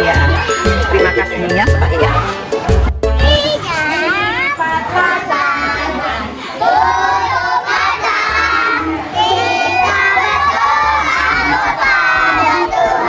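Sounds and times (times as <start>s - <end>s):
music with bass beat: 0.0s - 3.8s
children singing and shouting: 0.0s - 13.0s.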